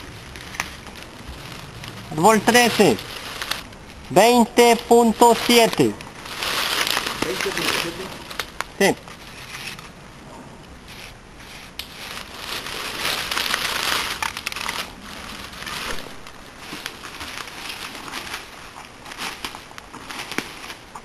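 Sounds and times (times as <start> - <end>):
dry leaves rustling and crackling: 0.0 - 10.0, 10.9 - 21.0.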